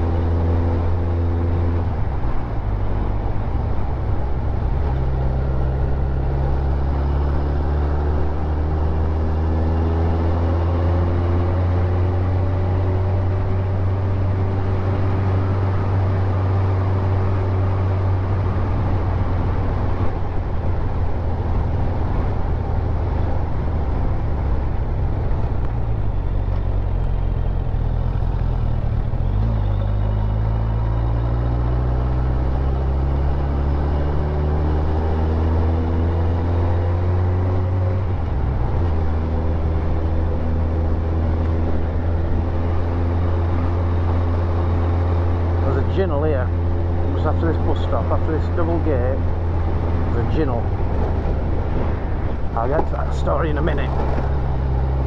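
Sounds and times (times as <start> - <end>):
motorcycle engine running: 20.6 - 30.3.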